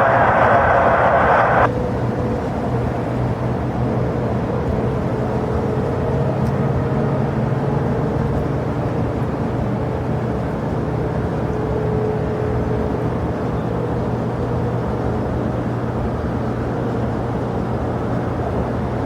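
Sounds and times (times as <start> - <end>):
jet engines running: 0.0 - 3.8.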